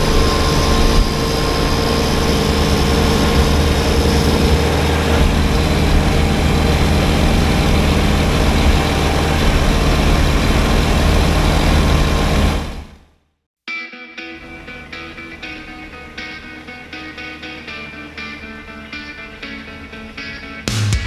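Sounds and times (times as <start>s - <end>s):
tractor diesel engine running: 0.0s - 13.1s.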